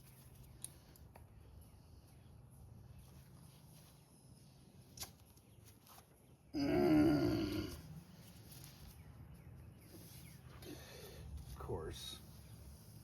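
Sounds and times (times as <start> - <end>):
man groaning: 6.6 - 7.8.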